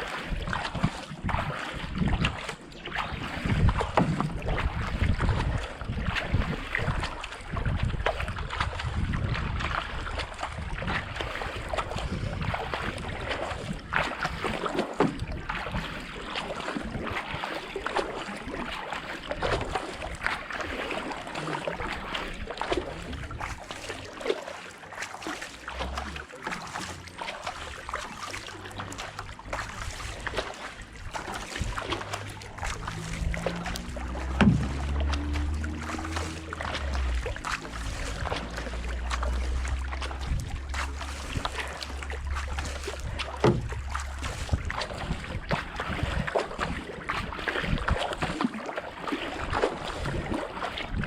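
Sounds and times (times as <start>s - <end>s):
hull moving through water: 0.0s - 51.0s
kayak paddles splashing in water: 0.0s - 51.0s
wind buffeting microphone: 3.0s - 16.2s, 27.3s - 48.4s, 49.4s - 51.0s.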